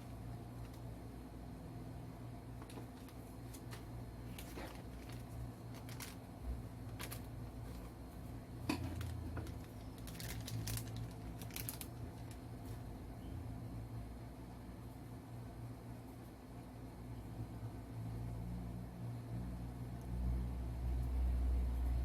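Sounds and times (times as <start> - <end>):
packaging crinkling and rustling: 2.6 - 8.0, 8.6 - 12.8.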